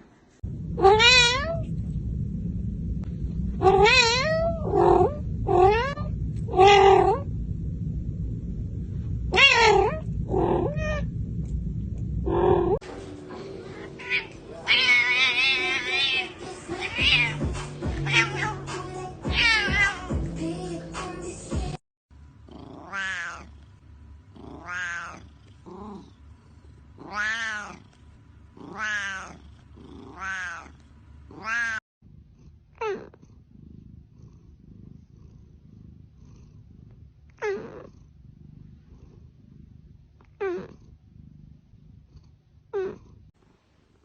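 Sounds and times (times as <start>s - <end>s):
cat meowing: 0.8s - 1.6s, 3.6s - 7.3s, 9.3s - 11.1s, 14.0s - 17.4s, 18.0s - 18.7s, 19.3s - 20.1s, 22.8s - 23.5s, 24.6s - 25.3s, 27.0s - 27.8s, 28.6s - 29.4s, 30.0s - 30.7s, 31.3s - 31.8s.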